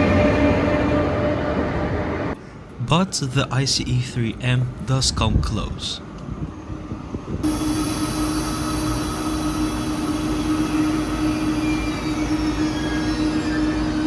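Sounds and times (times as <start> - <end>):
electric train whine: 0.0 - 2.8, 6.0 - 14.0.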